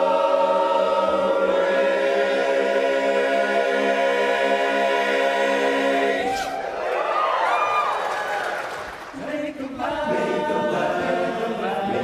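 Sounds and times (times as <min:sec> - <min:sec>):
barbershop chorus singing: 0:00.0 - 0:06.5, 0:09.1 - 0:12.0.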